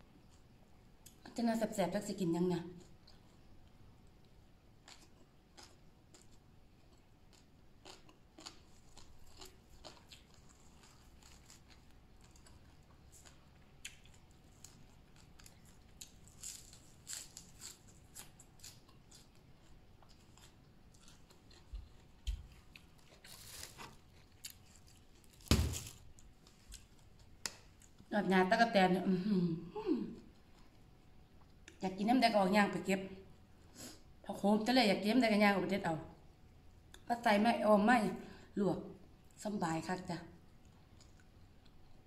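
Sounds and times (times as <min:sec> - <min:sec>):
crunching raw vegetables: 0:04.8 - 0:28.1.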